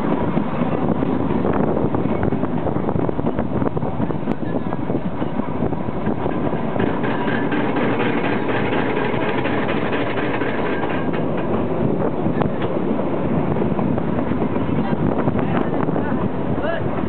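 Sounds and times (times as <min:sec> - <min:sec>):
wheels clicking on track: 0:00.0 - 0:16.4
toy train rumble and rattle: 0:06.1 - 0:11.6.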